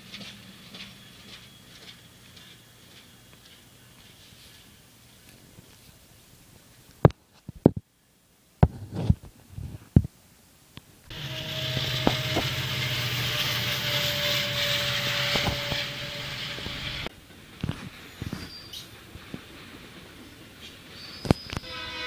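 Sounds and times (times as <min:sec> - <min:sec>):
freight train rumbling past: 0:00.0 - 0:04.2, 0:11.1 - 0:22.0
steady tone: 0:11.1 - 0:17.1.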